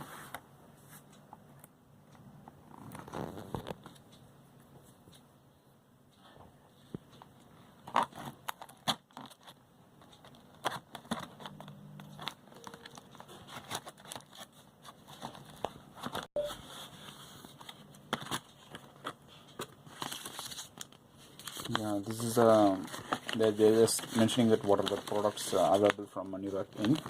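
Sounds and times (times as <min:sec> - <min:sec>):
paper and cardboard rustling: 0:07.8 - 0:27.0.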